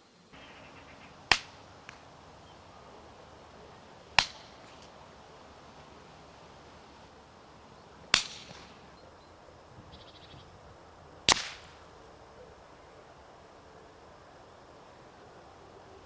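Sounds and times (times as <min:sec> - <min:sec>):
suppressed rifle shots: 0:00.4 - 0:09.1, 0:11.2 - 0:11.9.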